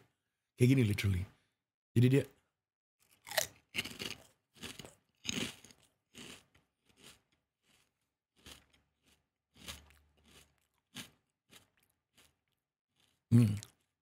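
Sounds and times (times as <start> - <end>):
chewing crispy snack: 3.0 - 14.0.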